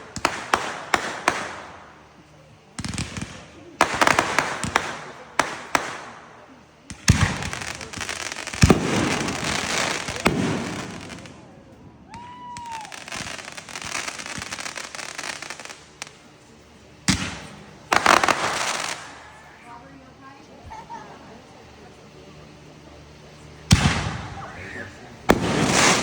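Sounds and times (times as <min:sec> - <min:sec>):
fireworks bangs: 0:00.0 - 0:19.8, 0:23.6 - 0:26.0
fireworks crackling: 0:00.0 - 0:26.0.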